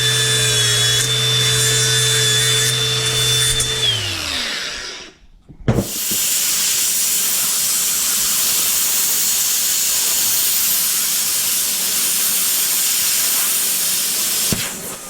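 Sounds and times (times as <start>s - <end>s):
plasma cutter hissing: 5.8s - 15.0s.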